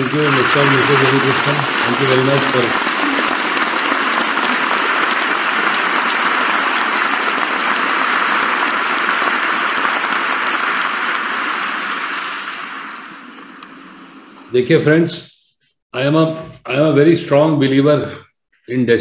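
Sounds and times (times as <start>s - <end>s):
crowd applauding: 0.0s - 13.8s.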